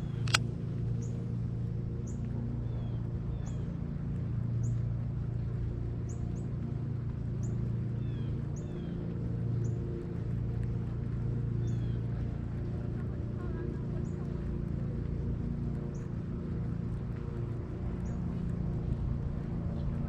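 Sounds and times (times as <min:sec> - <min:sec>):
steady low hum: 0:00.0 - 0:20.0
sharp click: 0:00.2 - 0:00.4.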